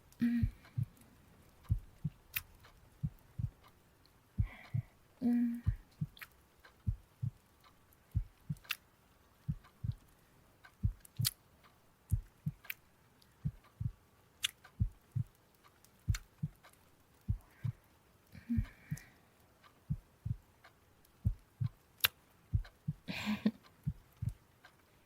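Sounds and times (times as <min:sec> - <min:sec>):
slow heartbeat: 0:00.0 - 0:01.0, 0:01.6 - 0:03.7, 0:04.4 - 0:06.2, 0:06.8 - 0:07.5, 0:08.1 - 0:08.8, 0:09.4 - 0:11.4, 0:12.1 - 0:12.7, 0:13.4 - 0:14.0, 0:14.6 - 0:15.4, 0:16.1 - 0:19.1, 0:19.8 - 0:20.5, 0:21.2 - 0:21.8, 0:22.5 - 0:24.4
faint clicks: 0:00.0 - 0:25.0.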